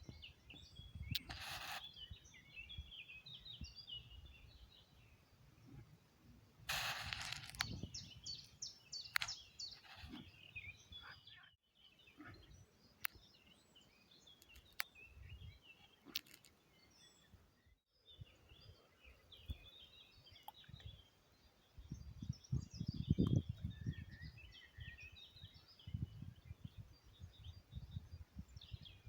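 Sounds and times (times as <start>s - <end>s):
small birds chirping: 0.0s - 29.0s
sharp clicks: 9.1s - 9.9s.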